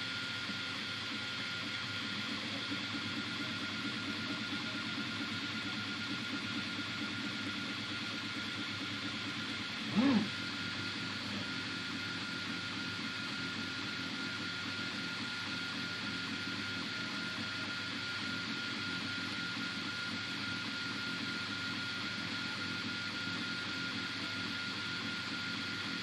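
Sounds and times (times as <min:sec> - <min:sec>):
printer fan whir: 0:00.0 - 0:26.0
thin steady whine: 0:00.0 - 0:26.0.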